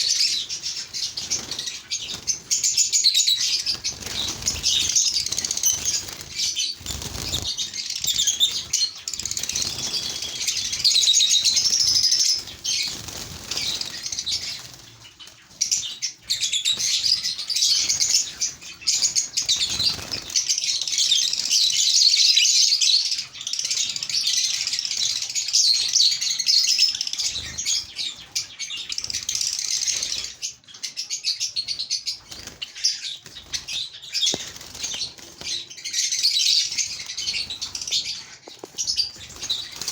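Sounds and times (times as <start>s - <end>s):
lovebirds chirping: 0.0s - 39.9s
wings flapping: 0.2s - 15.0s, 19.4s - 20.5s, 32.2s - 35.8s, 36.6s - 39.9s.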